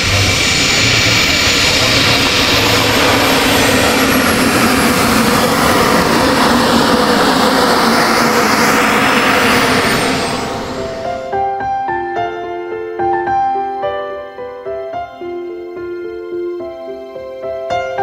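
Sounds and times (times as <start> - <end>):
jet turbine engine running: 0.0 - 11.5
high turbine whine: 0.0 - 11.6.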